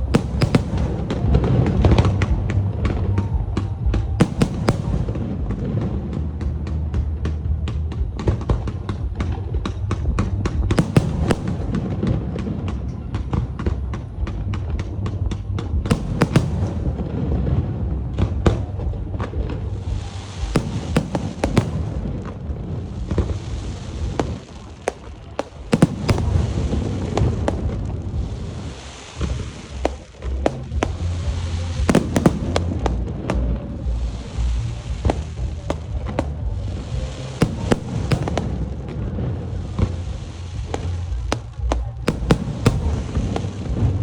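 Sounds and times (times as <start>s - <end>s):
hissing crackle: 0.0s - 1.5s, 4.2s - 5.2s, 10.8s - 12.0s, 15.9s - 17.5s, 19.6s - 44.0s
continuous low rumble: 0.0s - 44.0s
fireworks bursting with sharp bangs: 0.0s - 44.0s.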